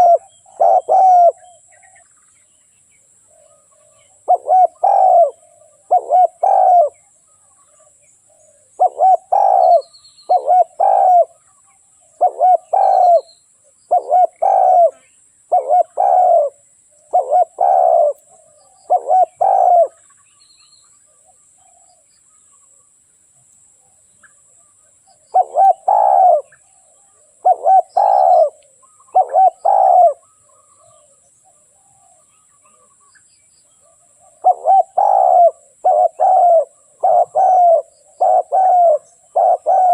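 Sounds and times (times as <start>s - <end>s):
dove cooing: 0.0s - 2.0s, 3.3s - 7.1s, 8.3s - 11.4s, 12.1s - 13.3s, 13.9s - 20.1s, 25.1s - 33.0s, 33.8s - 39.9s.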